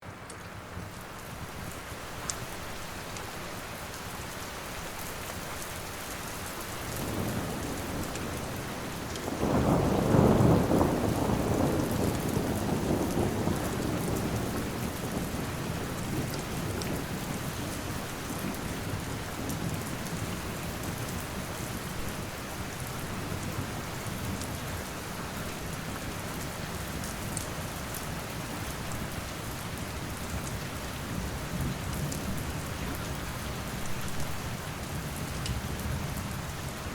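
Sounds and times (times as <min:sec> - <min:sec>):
steady rain falling: 0:00.0 - 0:36.9
thunder rumbling: 0:07.0 - 0:17.4.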